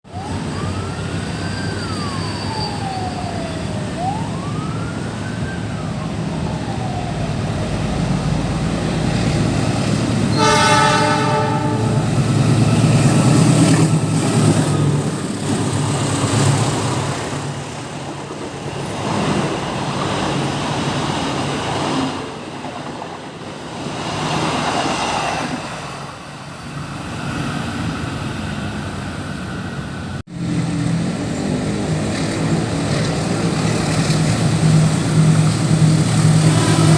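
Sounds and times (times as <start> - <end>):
siren-like wail: 0.1 - 26.2, 28.7 - 36.9
train rumbling past: 0.2 - 36.9
train horn blast: 10.0 - 14.0, 36.4 - 36.9.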